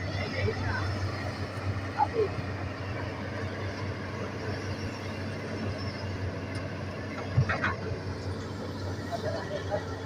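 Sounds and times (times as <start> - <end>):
excavator diesel engine running: 0.0 - 10.0.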